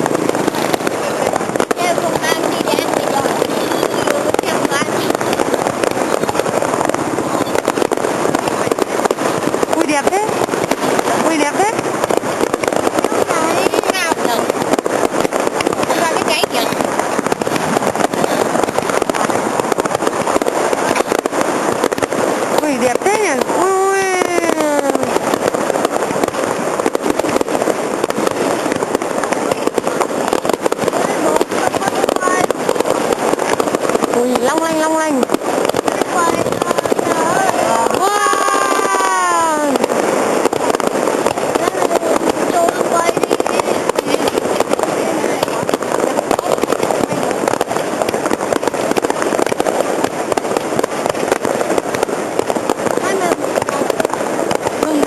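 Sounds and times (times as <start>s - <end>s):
fireworks crackling and popping: 0.0s - 55.0s
person speaking: 0.3s - 5.3s, 30.9s - 32.7s, 34.1s - 39.8s, 41.3s - 47.3s.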